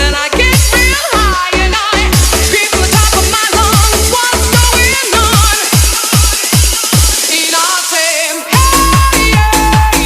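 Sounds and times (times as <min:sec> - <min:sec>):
pounding kick drum: 0:02.0 - 0:07.2, 0:08.6 - 0:10.0.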